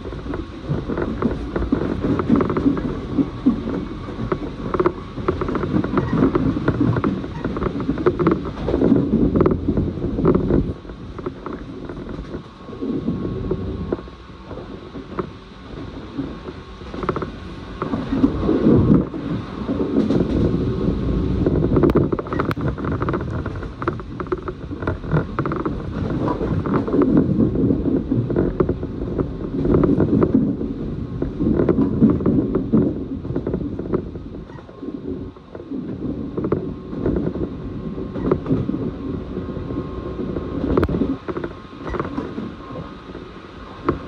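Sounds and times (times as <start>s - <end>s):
train wheels rumbling on rails: 0.0s - 44.0s
carriage creaks and clicks: 0.3s - 2.9s, 4.2s - 9.6s, 16.9s - 18.3s, 21.8s - 27.2s, 40.7s - 42.4s.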